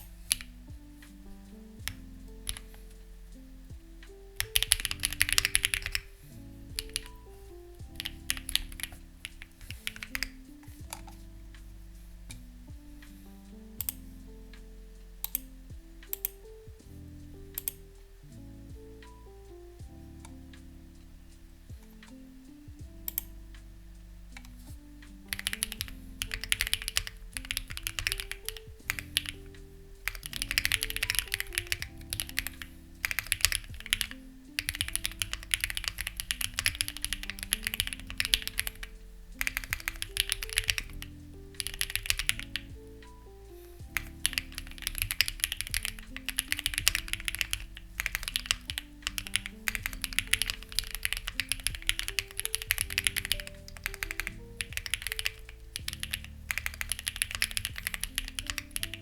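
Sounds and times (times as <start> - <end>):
mechanical keyboard typing: 0.0 - 1.2, 1.8 - 3.0, 4.4 - 11.2, 23.1 - 23.3, 24.4 - 59.0
soft background music: 0.0 - 59.0.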